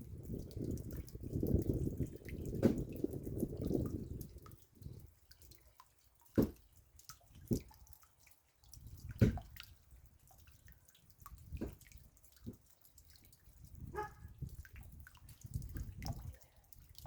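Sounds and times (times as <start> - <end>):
heavy raindrops landing: 0.0 - 5.4.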